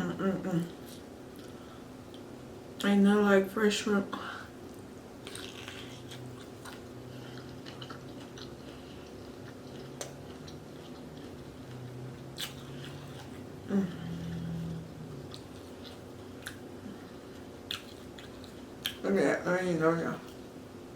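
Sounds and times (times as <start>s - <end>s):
person chewing: 4.7s - 19.0s
person humming: 13.6s - 15.1s.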